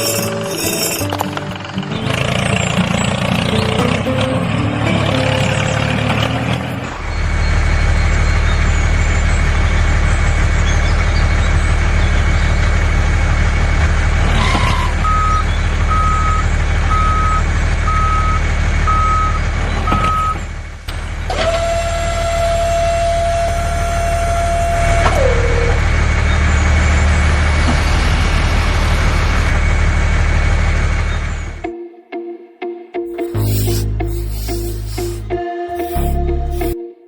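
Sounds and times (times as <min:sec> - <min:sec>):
engine drone: 0:00.0 - 0:14.3
reversing alarm beeping: 0:15.0 - 0:20.4
steady high tone: 0:33.1 - 0:36.8.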